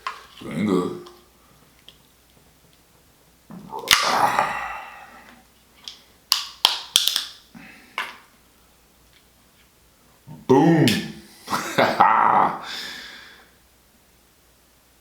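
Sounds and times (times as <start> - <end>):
lobster shell crunching and cracking: 6.3 - 7.4.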